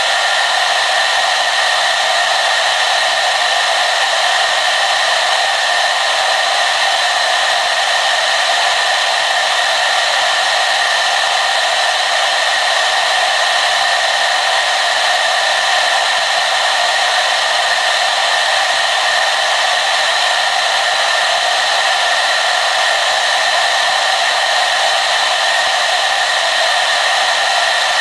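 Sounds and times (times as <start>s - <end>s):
hair dryer running: 0.0s - 28.0s.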